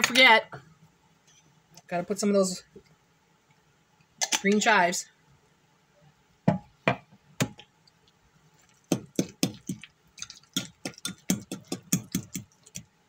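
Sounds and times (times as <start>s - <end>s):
utensil tapping while cutting chives: 10.6s - 12.8s.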